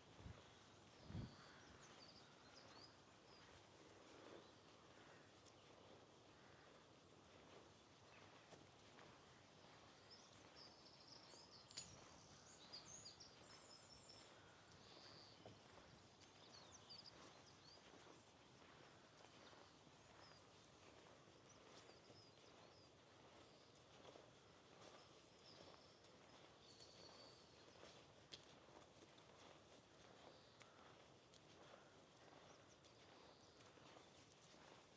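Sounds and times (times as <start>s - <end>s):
small birds chirping: 10.0s - 24.2s, 24.8s - 28.0s.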